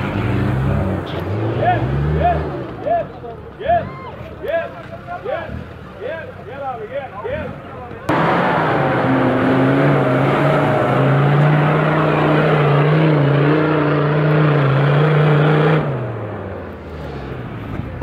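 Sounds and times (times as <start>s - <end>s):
off-road vehicle engine revving: 0.0s - 18.0s.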